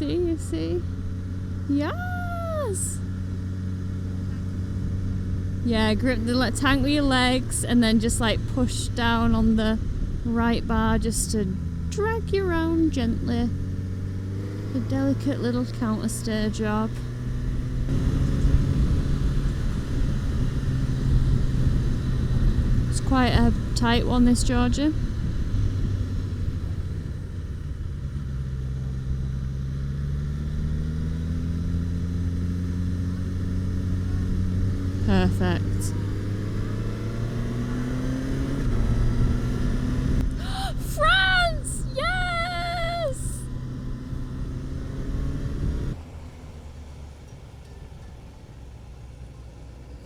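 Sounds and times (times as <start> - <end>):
motorcycle engine accelerating: 0.0 - 46.4
wind and road noise: 0.0 - 50.0.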